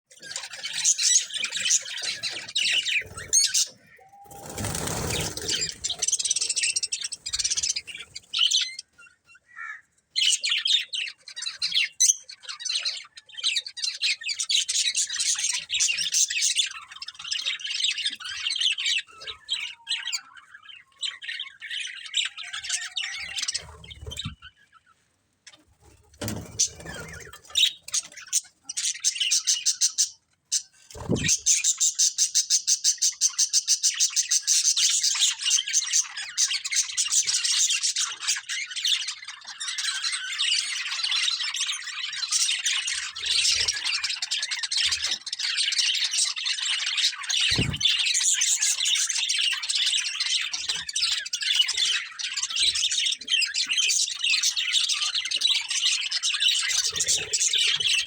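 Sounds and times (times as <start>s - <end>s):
budgerigars chattering: 26.6s - 58.0s.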